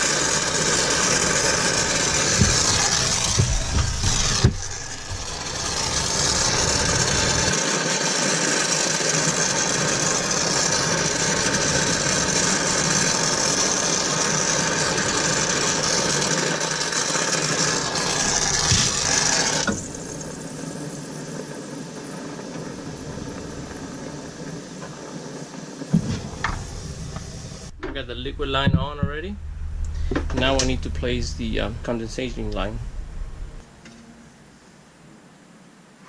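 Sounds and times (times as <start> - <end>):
torch flame hissing: 0.0 - 27.8
quiet steady noise: 17.6 - 36.0.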